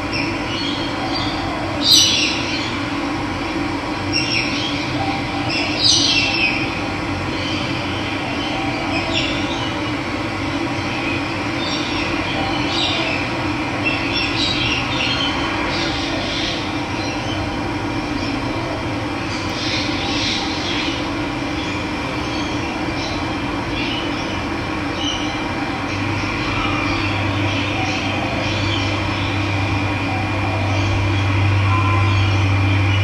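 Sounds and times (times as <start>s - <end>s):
birds chirping: 19.2s - 33.0s.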